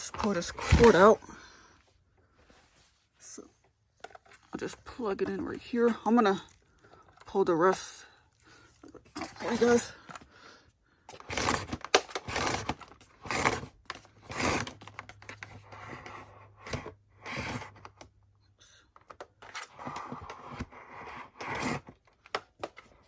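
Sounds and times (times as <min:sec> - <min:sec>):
vacuum cord scraping and clicking: 0:00.0 - 0:01.3, 0:04.0 - 0:10.3, 0:11.1 - 0:18.2, 0:19.0 - 0:23.0.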